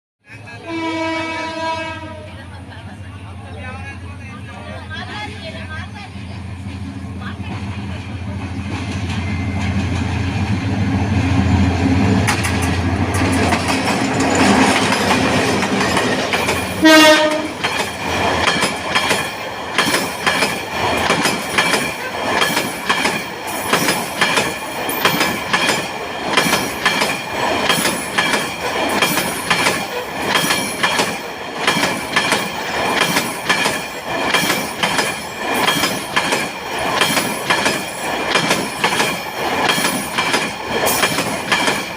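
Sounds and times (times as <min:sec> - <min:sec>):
locomotive engine rumble: 0:00.4 - 0:19.1
train horn blast: 0:00.6 - 0:02.4, 0:16.8 - 0:17.6
wheels clattering over rail joints: 0:12.1 - 0:41.9.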